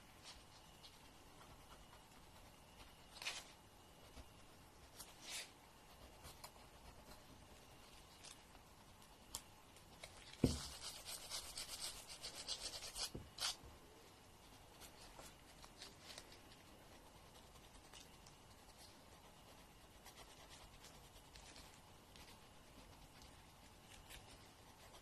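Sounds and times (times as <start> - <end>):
soft knock: 10.4 - 10.7.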